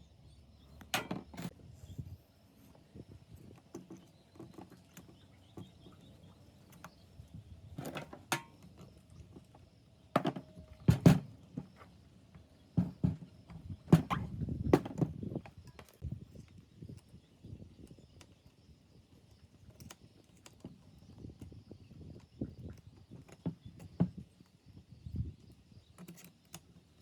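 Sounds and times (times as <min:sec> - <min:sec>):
knocks and clatter of tools: 0:00.8 - 0:01.6.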